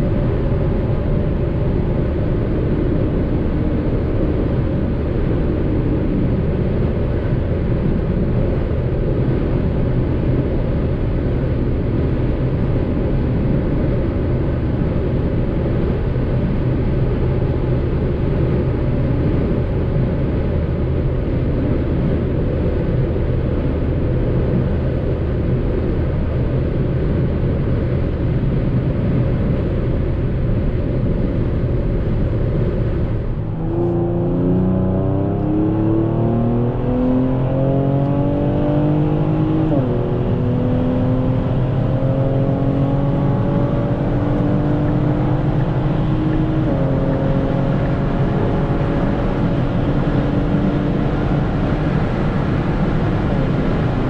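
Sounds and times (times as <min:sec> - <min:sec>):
car engine drone: 0:00.0 - 0:54.0
wind and road noise: 0:00.0 - 0:54.0
engine accelerating: 0:32.0 - 0:54.0.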